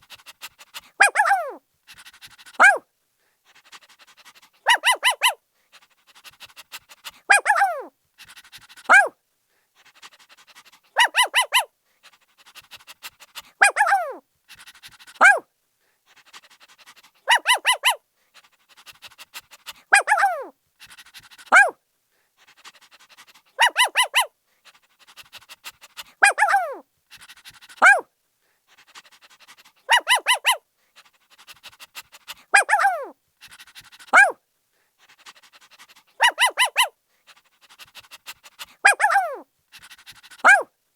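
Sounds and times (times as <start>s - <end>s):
puppy panting: 0.0s - 2.8s, 3.4s - 9.1s, 9.8s - 15.4s, 16.0s - 40.7s
puppy barking high-pitched yips: 1.0s - 1.6s, 2.6s - 2.8s, 4.6s - 5.4s, 7.3s - 7.9s, 8.9s - 9.1s, 11.0s - 11.7s, 13.6s - 14.2s, 15.2s - 15.4s, 17.3s - 18.0s, 19.9s - 20.5s, 21.5s - 21.8s, 23.6s - 24.3s, 26.2s - 26.8s, 27.8s - 28.0s, 29.9s - 30.6s, 32.5s - 33.2s, 34.1s - 34.4s, 36.2s - 36.9s, 38.8s - 39.4s, 40.4s - 40.7s.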